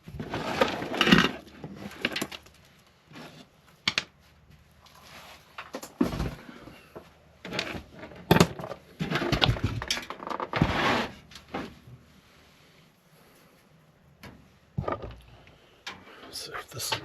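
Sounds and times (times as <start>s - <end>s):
computer parts knocking and clattering: 8.2s - 10.6s.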